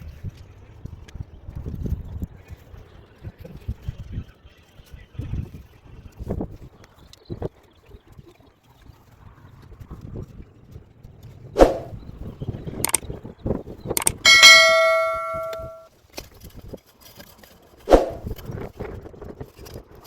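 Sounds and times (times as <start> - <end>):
metal struck and ringing: 14.0 - 15.8.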